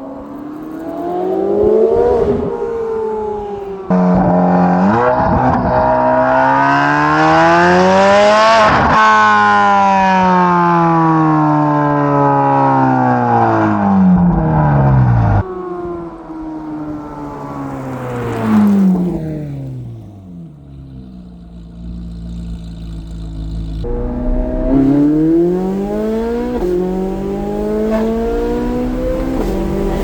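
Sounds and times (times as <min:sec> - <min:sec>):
sports car engine revving hard: 0:00.5 - 0:11.6, 0:19.4 - 0:30.0.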